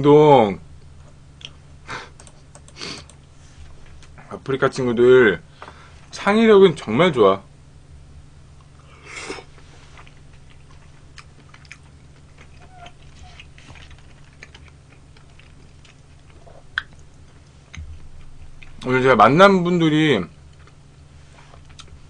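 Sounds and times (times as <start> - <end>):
person chewing quietly: 2.2 - 4.3, 8.6 - 18.9, 20.3 - 22.0.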